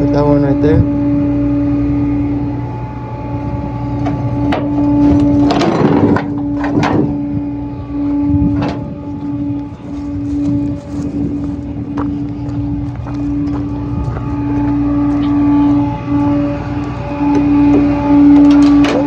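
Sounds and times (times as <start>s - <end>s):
tow truck engine hum: 0.0s - 19.0s
metal clanks and rattles: 4.0s - 7.2s, 17.3s - 19.0s.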